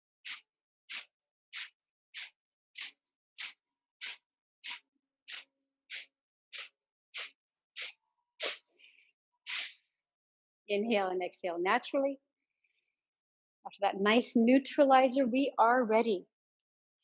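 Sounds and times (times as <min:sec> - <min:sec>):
forceful nasal exhalations: 0:00.2 - 0:09.9.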